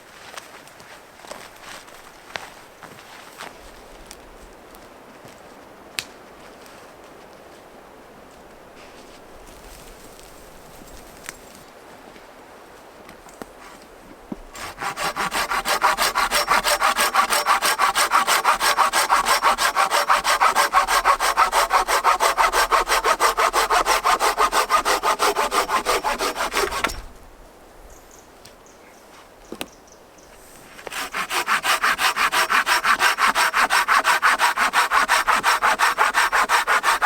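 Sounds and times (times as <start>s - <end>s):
hand saw cutting wood: 14.5s - 27.1s, 30.7s - 37.0s.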